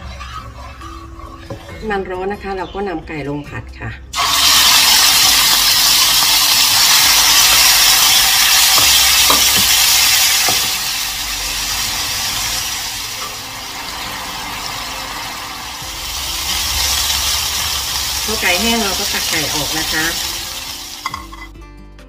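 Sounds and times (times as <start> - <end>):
chicken sizzling in hot oil: 4.2 - 21.5.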